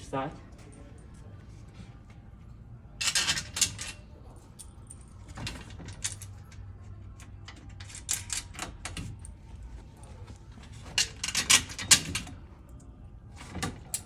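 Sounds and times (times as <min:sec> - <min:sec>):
screws and washers rattling: 0:03.0 - 0:04.0, 0:10.7 - 0:12.4.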